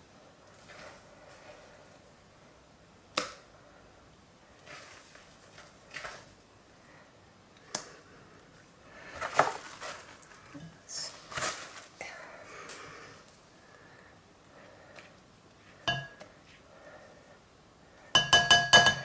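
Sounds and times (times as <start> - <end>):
kitchen utensils clicking and knocking: 15.9 - 16.2, 18.2 - 19.0.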